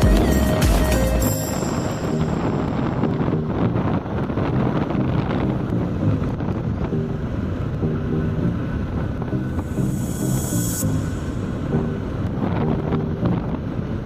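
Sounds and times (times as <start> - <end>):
motorcycle engine: 0.0 - 14.0
road noise: 0.0 - 14.0
wind rushing over microphone: 0.0 - 14.0.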